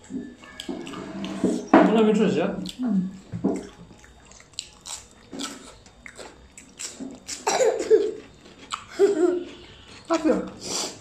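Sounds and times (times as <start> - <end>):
chewing food: 2.6 - 10.6.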